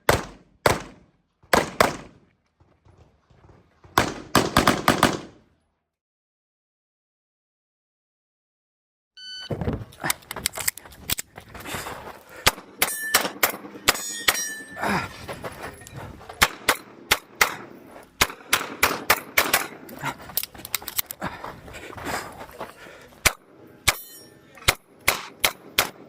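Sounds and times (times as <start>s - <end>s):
pistol shots: 0.0s - 2.2s, 4.0s - 5.4s
bullets ringing on steel targets: 12.6s - 14.9s, 23.8s - 26.0s.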